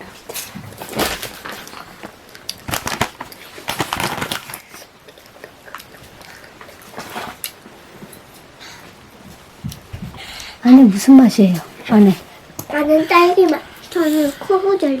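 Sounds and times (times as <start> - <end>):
candy and wrapper crackling: 0.8 - 7.6.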